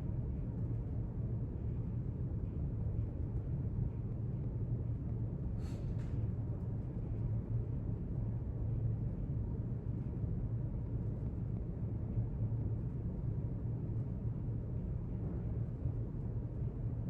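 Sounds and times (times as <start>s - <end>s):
low room rumble: 0.0s - 17.0s.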